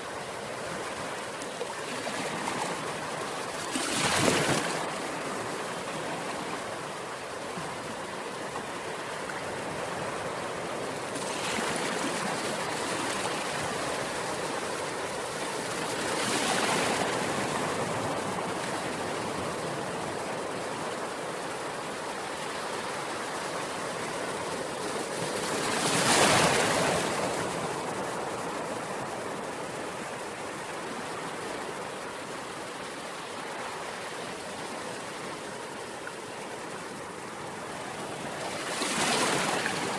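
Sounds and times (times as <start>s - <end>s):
ocean waves breaking: 22.2s - 39.9s.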